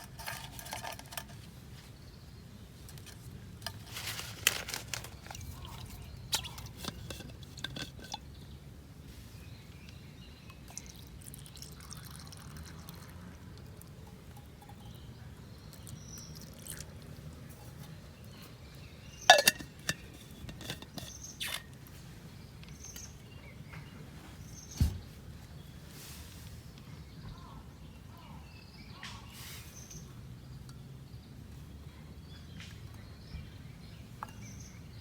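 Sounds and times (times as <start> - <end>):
objects being handled: 0.0 - 1.9, 2.8 - 8.5, 19.2 - 22.0.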